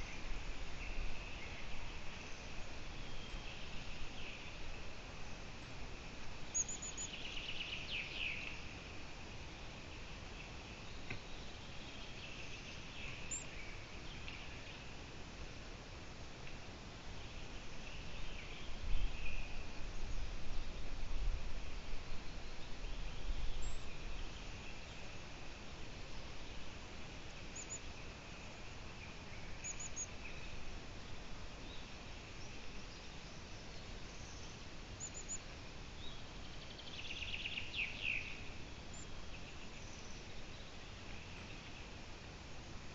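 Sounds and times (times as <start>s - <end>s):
songbird chirping: 0.0s - 8.9s, 9.8s - 15.1s, 17.1s - 20.9s, 21.9s - 42.8s
steady hiss: 0.0s - 42.9s
small bird chirping: 6.5s - 8.6s, 12.2s - 14.9s, 27.5s - 30.5s, 33.8s - 35.4s.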